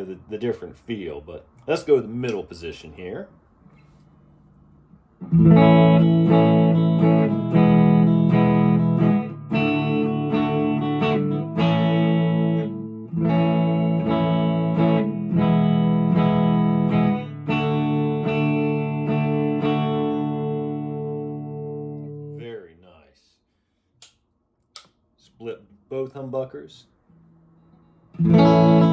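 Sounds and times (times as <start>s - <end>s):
electric guitar chords and arpeggios: 5.2s - 22.4s, 28.1s - 28.9s.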